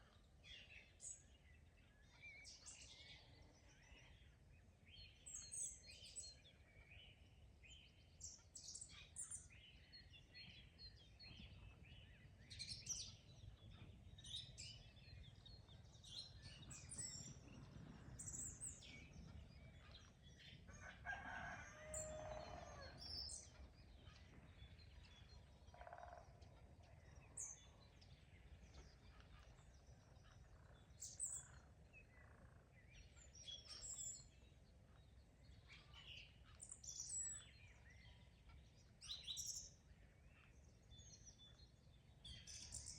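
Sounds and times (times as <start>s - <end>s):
songbirds chirping and singing: 0.0s - 42.9s
rooster crowing: 20.7s - 23.0s.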